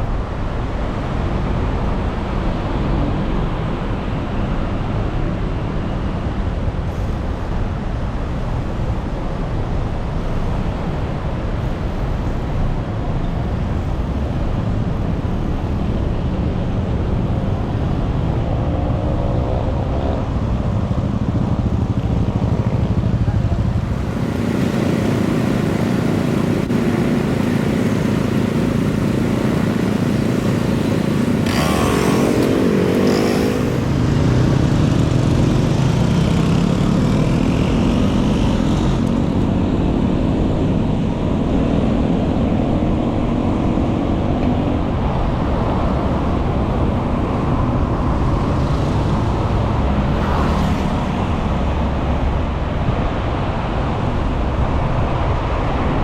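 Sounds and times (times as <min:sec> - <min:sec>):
street traffic rumble: 0:00.0 - 0:56.0.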